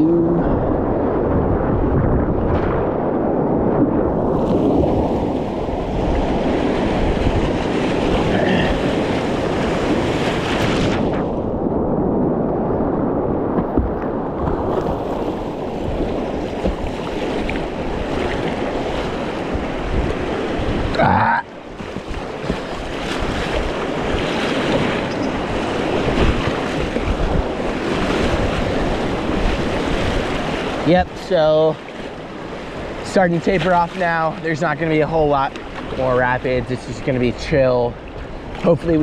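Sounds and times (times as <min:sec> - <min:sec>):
wind noise on microphone: 0:00.0 - 0:31.2
rushing creek water: 0:13.9 - 0:39.0.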